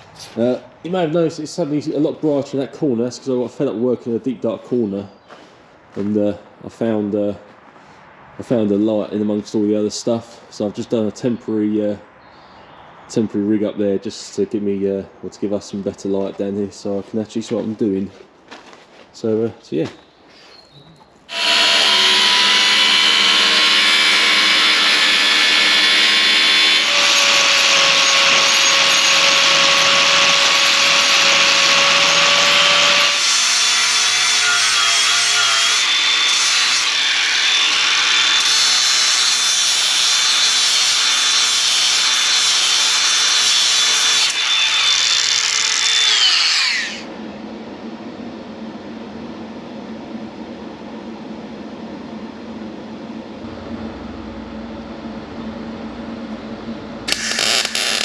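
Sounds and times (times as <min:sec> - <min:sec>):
angle grinder cutting steel: 0:21.3 - 0:47.1, 0:57.1 - 0:58.0
quiet steady hum: 0:47.0 - 0:58.0.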